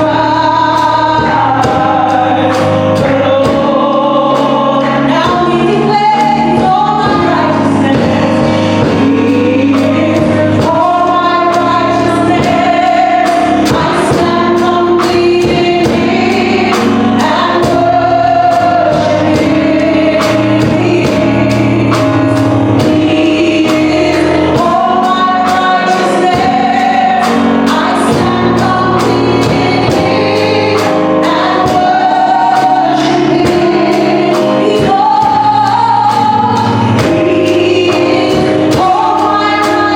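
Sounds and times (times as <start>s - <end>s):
band playing steady beat: 0.0s - 39.9s
voices singing gospel song: 0.0s - 39.9s.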